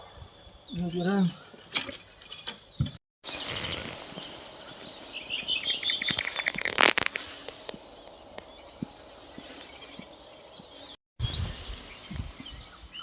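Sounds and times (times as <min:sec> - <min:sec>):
songbird trilling: 0:00.0 - 0:13.0
outdoor background hiss: 0:03.2 - 0:13.0
loud rustle: 0:03.3 - 0:12.8.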